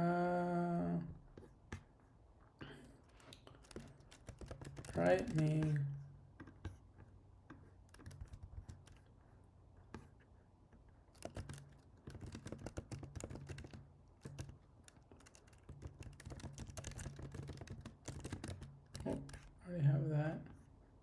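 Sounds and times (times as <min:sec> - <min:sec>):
typing on computer keyboard: 0:03.0 - 0:05.8, 0:07.8 - 0:09.1, 0:11.1 - 0:19.6.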